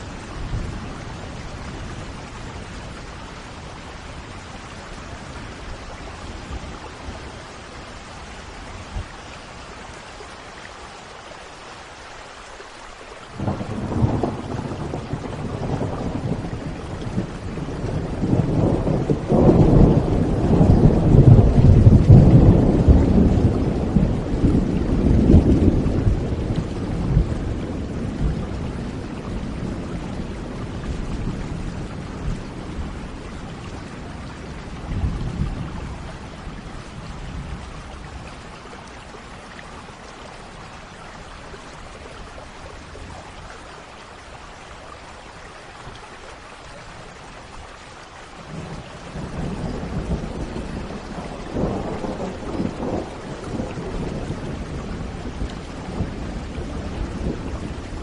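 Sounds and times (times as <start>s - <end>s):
steady rain: 0.0s - 58.0s
rolling thunder: 13.4s - 38.6s, 48.4s - 58.0s.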